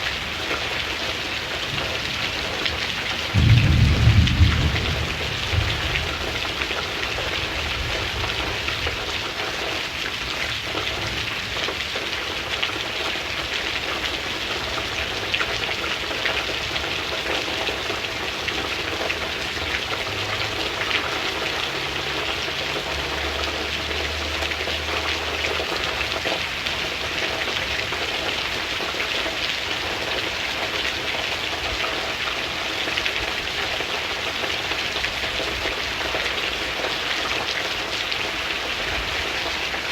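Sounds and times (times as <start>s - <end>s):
rain falling: 0.0s - 39.9s
thunder rumble: 1.7s - 9.0s.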